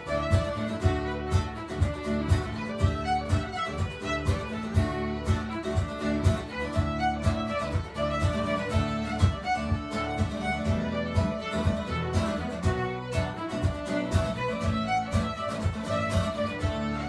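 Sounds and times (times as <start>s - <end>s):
fiddle playing lively tune: 0.0s - 17.0s
strummed guitar: 0.0s - 17.0s.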